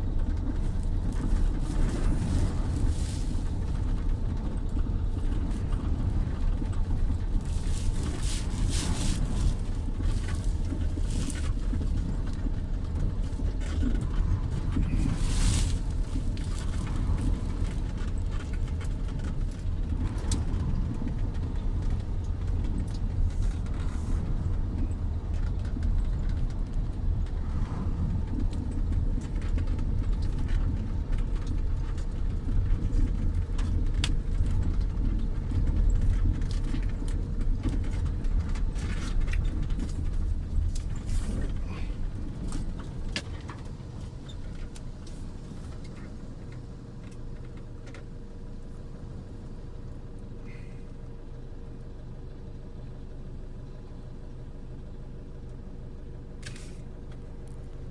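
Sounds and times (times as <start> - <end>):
storm wind buffeting microphone: 0.0 - 46.3.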